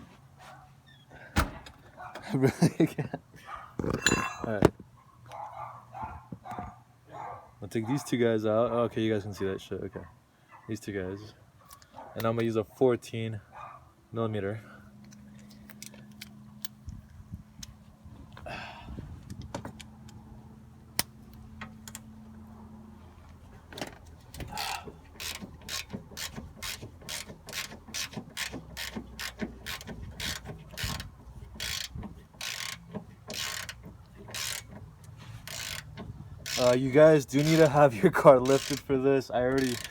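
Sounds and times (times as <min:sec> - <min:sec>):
socket ratchet clicking: 0:24.4 - 0:37.7, 0:38.4 - 0:38.9, 0:39.6 - 0:39.9.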